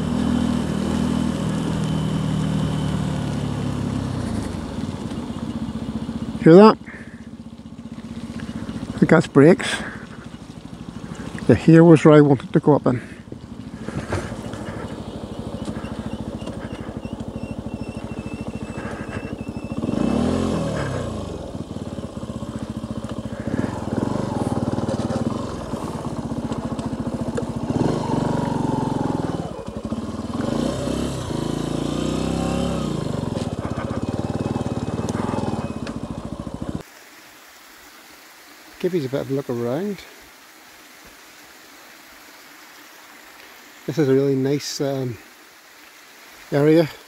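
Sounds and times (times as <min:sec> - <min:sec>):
motorcycle engine revving: 0:00.0 - 0:36.8.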